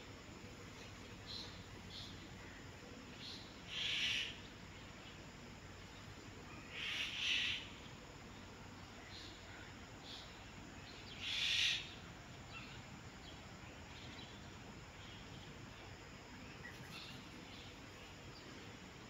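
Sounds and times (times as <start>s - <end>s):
low steady background noise: 0.0s - 19.0s
birds calling: 3.2s - 4.5s, 6.5s - 8.0s, 9.0s - 18.1s.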